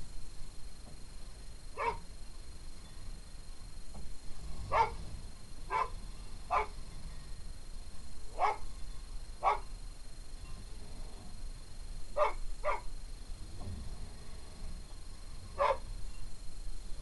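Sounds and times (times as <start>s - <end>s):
low steady rumble: 0.0s - 17.0s
dog barking: 1.8s - 2.0s, 4.7s - 5.0s, 5.7s - 6.8s, 8.4s - 8.6s, 9.4s - 9.7s, 12.2s - 12.9s, 15.6s - 15.9s.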